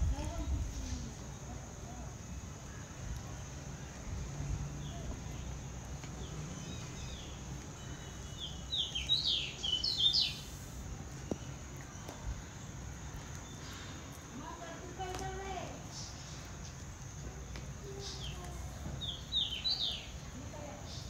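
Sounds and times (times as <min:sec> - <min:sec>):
low steady background noise: 0:00.0 - 0:21.0
bird chirping: 0:04.8 - 0:12.2, 0:17.9 - 0:21.0.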